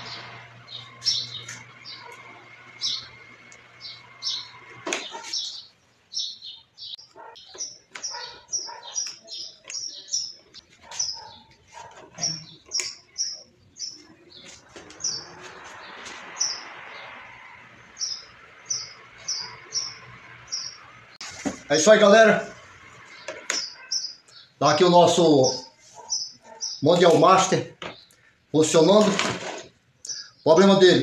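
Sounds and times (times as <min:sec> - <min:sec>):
small bird chirping: 0:00.0 - 0:17.1, 0:17.9 - 0:21.2, 0:23.0 - 0:24.6, 0:25.6 - 0:27.2, 0:30.0 - 0:30.5.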